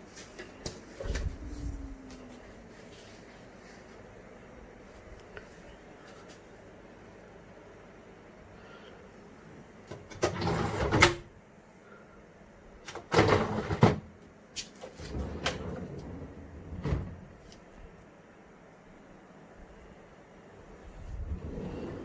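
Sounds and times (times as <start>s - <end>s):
refrigerator drawer sliding shut: 10.1s - 11.3s, 13.0s - 14.1s, 15.0s - 17.3s, 21.3s - 22.0s.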